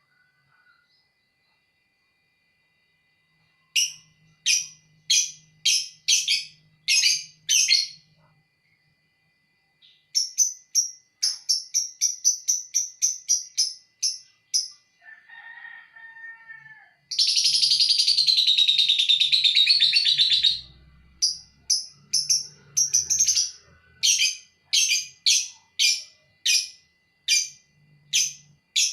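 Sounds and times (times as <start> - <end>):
lovebird chirps: 3.6 - 8.2, 9.8 - 14.8, 17.1 - 28.9
lovebird chattering trill: 3.8 - 8.0, 9.8 - 14.8, 17.1 - 28.9.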